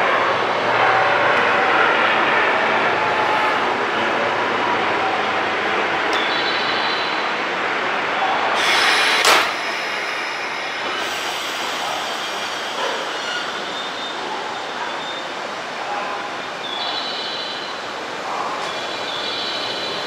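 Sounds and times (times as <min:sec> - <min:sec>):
train moving off: 0:02.6 - 0:16.6
rush of air: 0:08.5 - 0:14.5
train door banging shut: 0:09.1 - 0:10.6.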